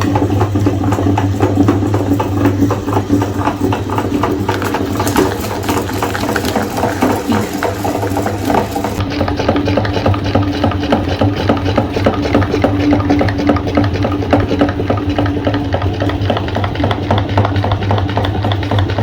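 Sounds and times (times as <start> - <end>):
electric grinder motor hum: 0.0 - 9.8
cookies crunching in grinder: 0.0 - 10.2.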